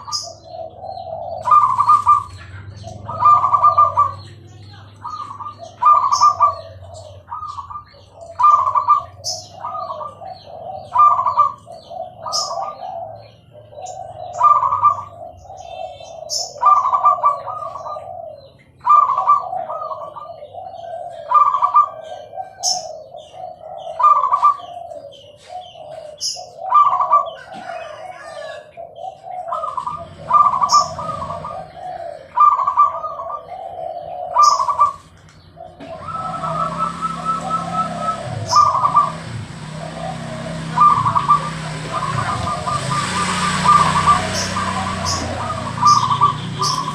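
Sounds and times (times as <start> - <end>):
doves cooing: 0.0 - 46.9
rushing noise: 35.8 - 46.9.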